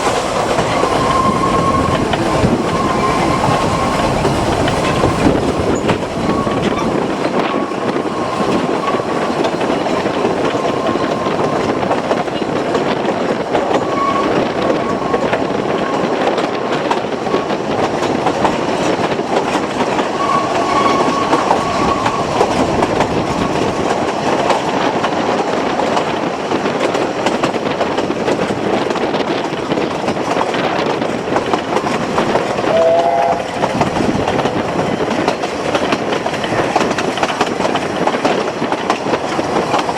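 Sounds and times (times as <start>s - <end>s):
train rumbling over rails: 0.0s - 39.9s
wheel squeals: 0.7s - 9.6s, 20.0s - 23.8s
short higher tone: 32.6s - 33.6s.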